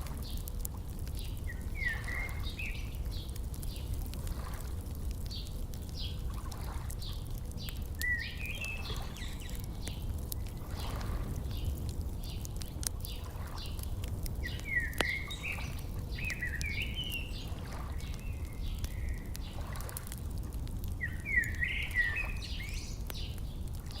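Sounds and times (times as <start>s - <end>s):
campfire crackling and popping: 0.0s - 24.0s
songbird warbling: 1.5s - 2.9s, 8.0s - 9.6s, 14.4s - 19.3s, 21.0s - 23.3s.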